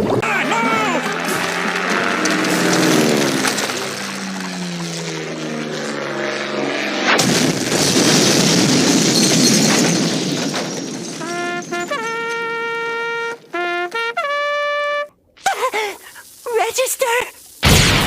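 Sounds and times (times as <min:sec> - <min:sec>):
brass notes: 0:00.2 - 0:03.8, 0:11.2 - 0:15.3
cartoon falling tone: 0:00.2 - 0:04.7
cartoon explosion blast: 0:07.0 - 0:13.7, 0:17.6 - 0:18.0.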